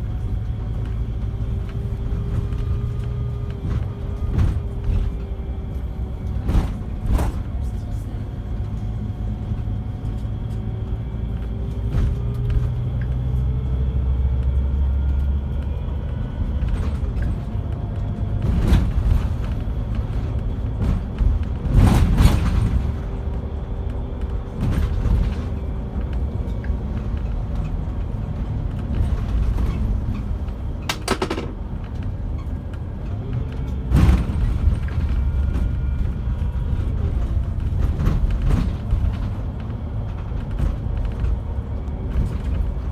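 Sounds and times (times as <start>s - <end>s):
bus engine and road rumble: 0.0s - 42.9s
body knocks and rattles: 29.2s - 31.8s.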